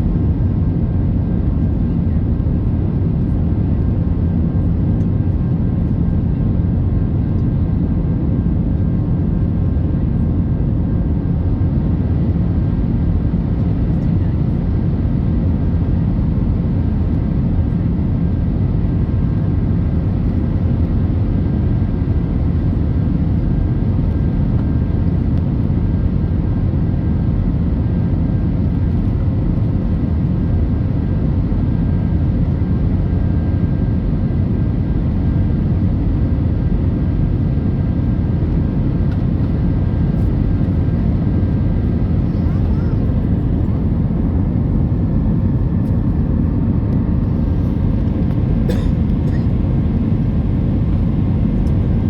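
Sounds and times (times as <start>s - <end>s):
jet engines rumbling: 14.2s - 52.0s.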